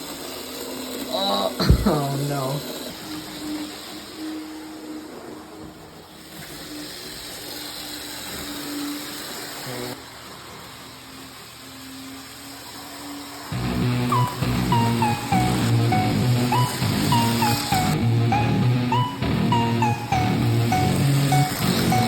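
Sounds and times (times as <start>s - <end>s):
model train wheels on track: 0.0s - 15.4s.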